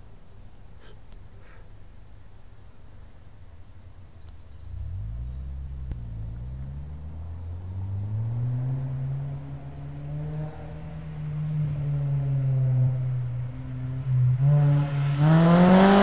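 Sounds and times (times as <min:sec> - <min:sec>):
car engine accelerating: 0:03.8 - 0:16.0.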